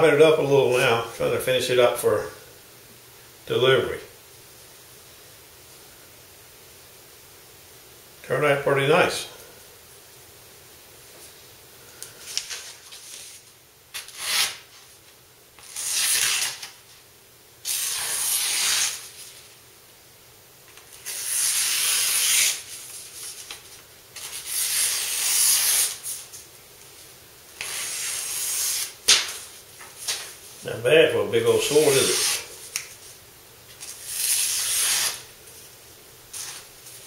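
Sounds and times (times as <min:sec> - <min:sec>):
blade rubbing along a strop: 0:31.6 - 0:32.5.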